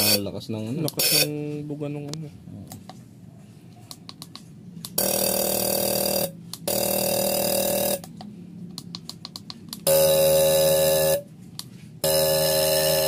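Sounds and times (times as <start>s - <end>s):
fuel injectors buzzing: 4.9s - 8.3s, 9.2s - 11.3s, 12.0s - 13.0s.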